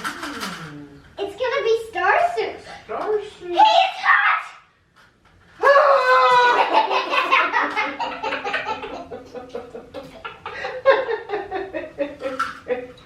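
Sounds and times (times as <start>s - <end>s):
young child laughing: 5.9s - 12.8s.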